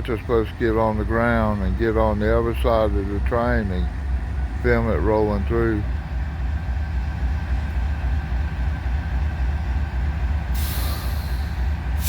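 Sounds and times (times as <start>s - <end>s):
diesel locomotives idling: 0.0s - 12.0s
air brake hiss: 10.5s - 12.0s.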